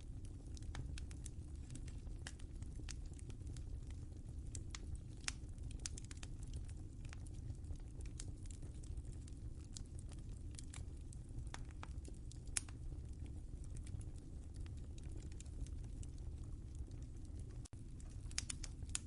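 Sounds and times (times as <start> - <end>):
fire pops and snaps: 0.0 - 19.0
wood fire crackling: 0.0 - 19.0.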